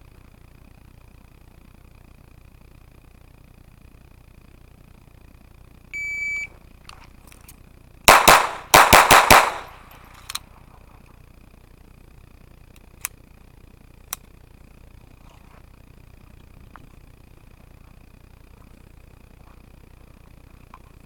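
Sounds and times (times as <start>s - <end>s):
low rumble and hiss: 0.0s - 21.0s
shot timer beep: 6.0s - 6.5s
pistol shots: 8.1s - 10.3s.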